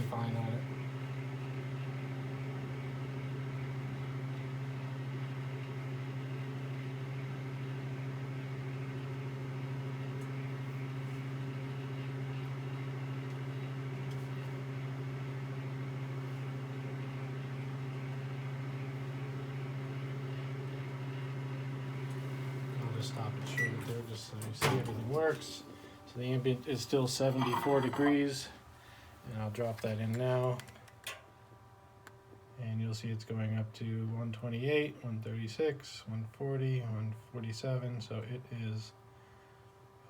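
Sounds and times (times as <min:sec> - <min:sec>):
microwave oven humming: 0:00.0 - 0:40.0
fan noise: 0:16.0 - 0:40.0.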